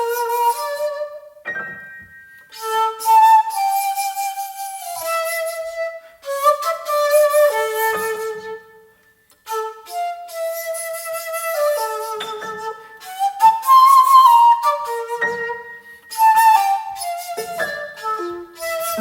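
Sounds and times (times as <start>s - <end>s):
bamboo flute melody: 0.0s - 19.0s.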